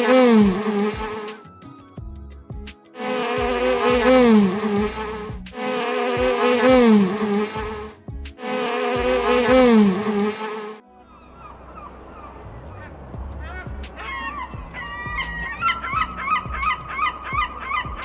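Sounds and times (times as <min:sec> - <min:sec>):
insect buzzing: 0:00.0 - 0:01.4, 0:03.0 - 0:10.8.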